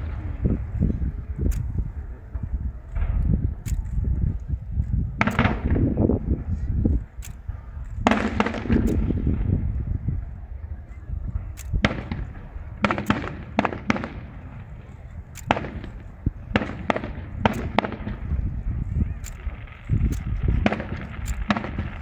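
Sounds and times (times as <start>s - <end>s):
low rumble: 0.0s - 22.0s
firework shells bursting: 5.2s - 6.4s, 7.0s - 9.6s, 11.6s - 22.0s.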